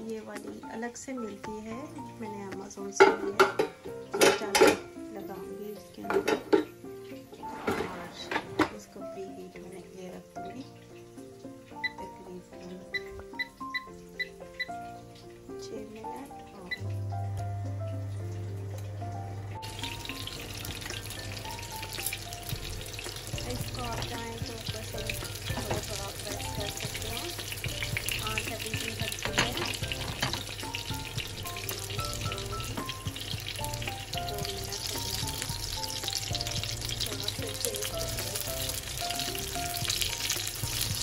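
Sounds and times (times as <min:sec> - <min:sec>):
background music: 0:00.0 - 0:41.0
meat sizzling in oil: 0:00.0 - 0:41.0
spatula and tongs scraping pan: 0:06.1 - 0:08.8.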